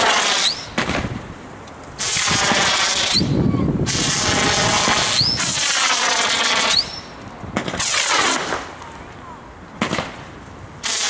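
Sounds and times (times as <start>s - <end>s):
firework shots hissing and squealing: 0.0s - 1.2s, 2.0s - 8.8s, 10.8s - 11.0s.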